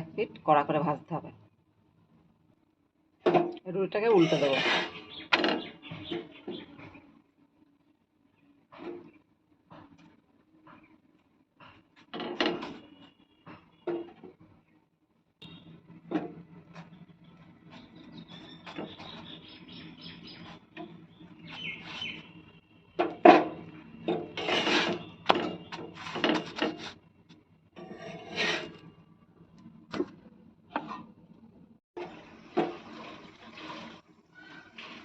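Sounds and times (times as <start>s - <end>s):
dough rubbing and scraping: 4.1s - 5.1s, 21.4s - 22.4s, 24.3s - 27.0s, 27.8s - 28.9s.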